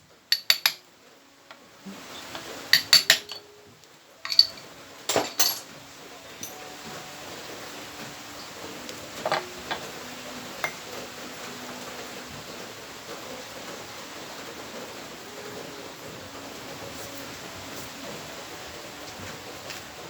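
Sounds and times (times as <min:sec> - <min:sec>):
rain hiss: 0:00.0 - 0:20.0
metallic clicks of tools and parts: 0:00.3 - 0:00.8, 0:04.2 - 0:05.6.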